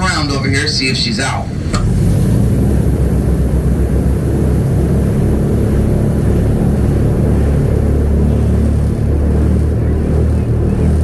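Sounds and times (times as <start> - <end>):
airboat engine and propeller: 0.0 - 11.0.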